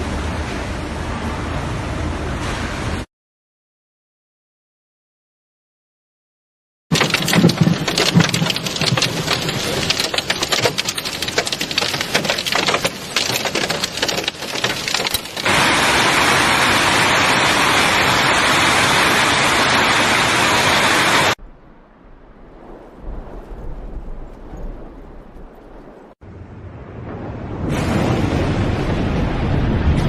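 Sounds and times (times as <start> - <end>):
hailstones clattering: 6.9 - 15.9
heavy rain downpour: 6.9 - 21.4, 26.0 - 30.0.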